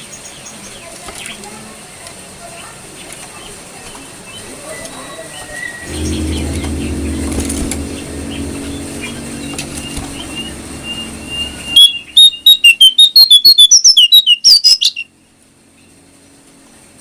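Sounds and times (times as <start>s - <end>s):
low hum: 5.9s - 13.3s.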